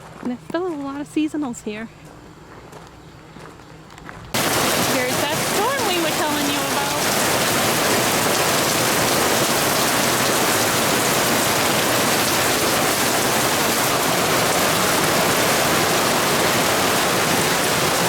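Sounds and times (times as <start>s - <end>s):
rain falling steadily: 4.4s - 18.0s.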